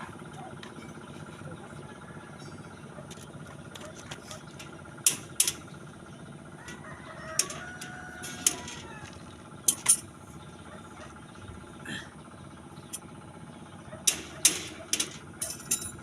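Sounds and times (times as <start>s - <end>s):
rooster crowing: 1.9s - 2.7s, 6.5s - 9.3s
sharp clinking knocks: 4.5s - 5.7s, 6.6s - 10.1s, 14.0s - 16.0s.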